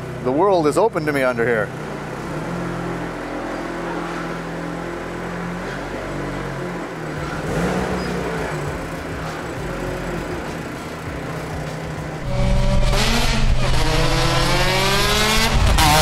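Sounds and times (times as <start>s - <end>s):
car engine pulling away: 12.1s - 16.0s.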